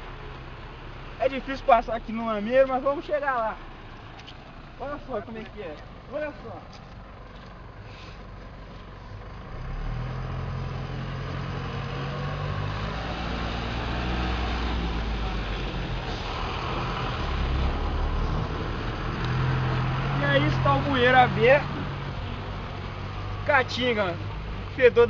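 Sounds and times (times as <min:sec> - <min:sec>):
bus diesel engine running: 0:00.0 - 0:25.0.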